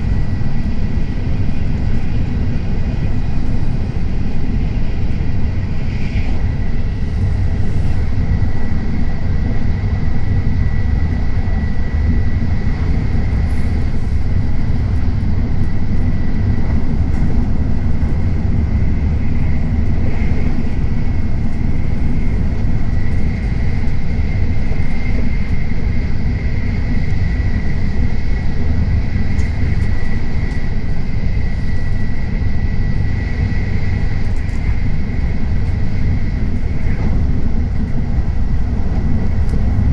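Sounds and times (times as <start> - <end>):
train high whine: 0.0 - 39.9
train low rumble: 0.0 - 39.9.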